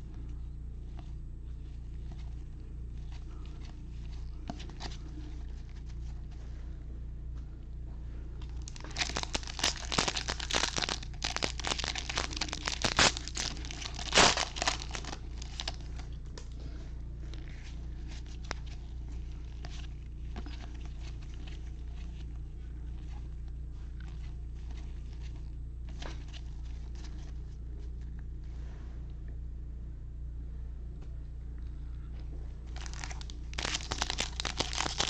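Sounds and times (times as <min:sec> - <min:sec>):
foil wrapper tearing and crinkling: 0:08.6 - 0:15.9, 0:32.7 - 0:35.0.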